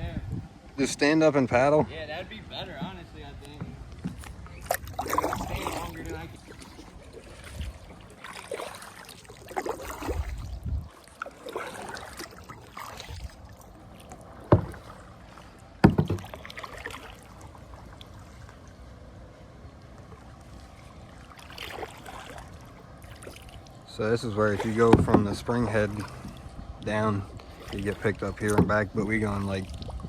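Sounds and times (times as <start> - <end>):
paddle strokes swishing in water: 1.6 - 30.0
sharp knocks: 15.8 - 16.3.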